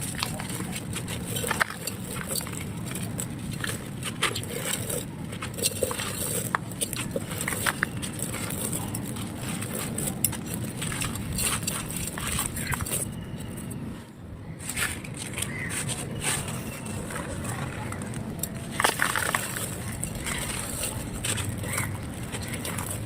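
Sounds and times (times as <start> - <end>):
dry clay crunching and crackling: 0.0 - 23.0.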